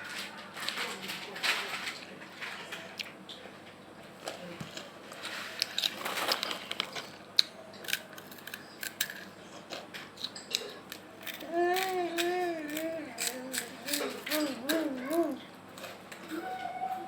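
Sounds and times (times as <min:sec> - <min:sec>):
chips being bitten and chewed: 0:04.2 - 0:15.9.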